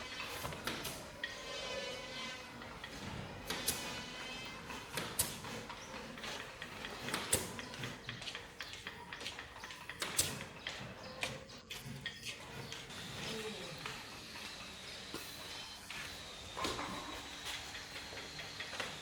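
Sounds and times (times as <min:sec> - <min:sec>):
small hard parts clicking: 0:02.6 - 0:15.5.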